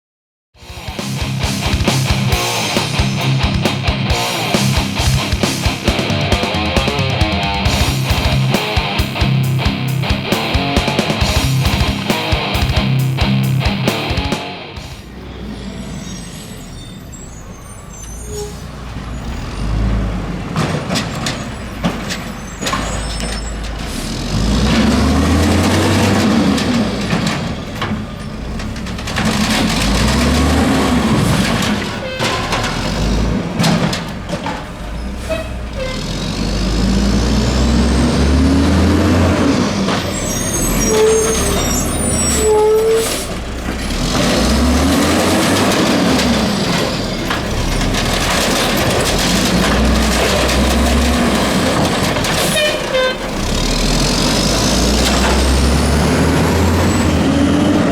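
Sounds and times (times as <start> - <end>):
diesel engine revving: 0.6 - 57.9
metal clanks and knocks: 25.4 - 35.2, 43.4 - 53.5.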